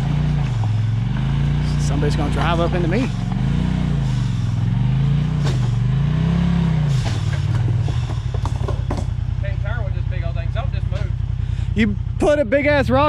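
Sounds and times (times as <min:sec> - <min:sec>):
vehicle engine revving: 0:00.0 - 0:13.0
knock: 0:07.9 - 0:09.1.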